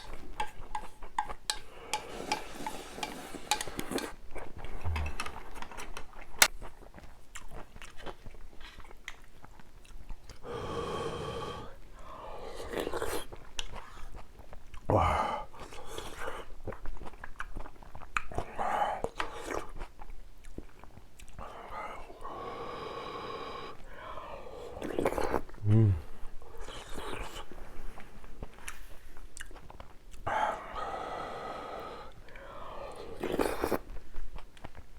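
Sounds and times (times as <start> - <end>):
chewing noodles: 0.0 - 34.9
sharp mouth clicks: 4.6 - 5.7.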